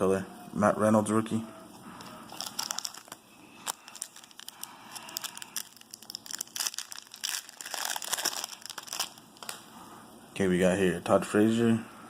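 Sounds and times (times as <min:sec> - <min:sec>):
foil wrapper crinkling: 0:02.3 - 0:09.6.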